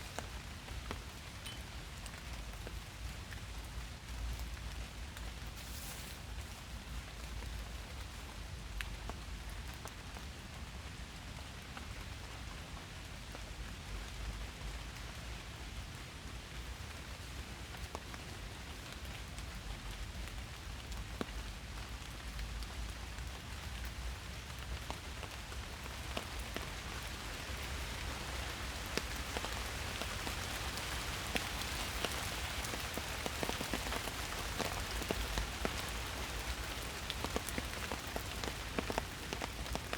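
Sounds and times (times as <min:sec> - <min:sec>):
steady rain hiss: 0:00.0 - 0:39.9
raindrops ticking: 0:25.6 - 0:39.9.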